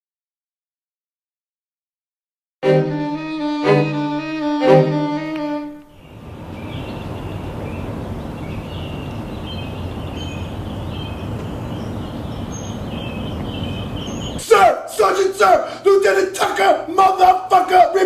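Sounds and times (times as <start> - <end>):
bowed string chord: 2.6 - 5.9
distant city traffic rumble: 5.6 - 18.0.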